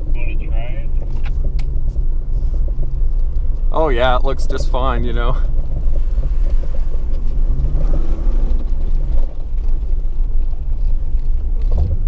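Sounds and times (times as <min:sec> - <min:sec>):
car engine rumble: 0:00.0 - 0:12.0
low thump: 0:11.6 - 0:12.0.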